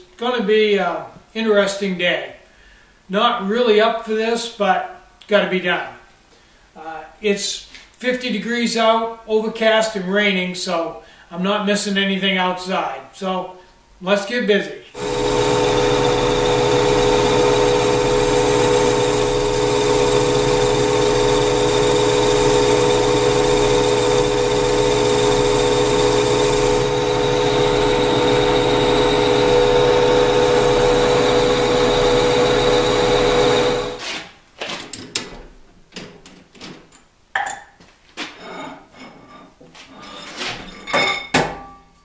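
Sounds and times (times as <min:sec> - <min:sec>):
electric power tool motor running: 0:15.0 - 0:34.0.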